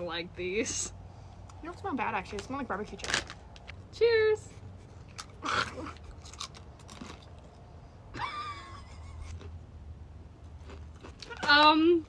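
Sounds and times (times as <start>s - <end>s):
chewing crisps: 5.0s - 7.7s, 10.4s - 11.5s.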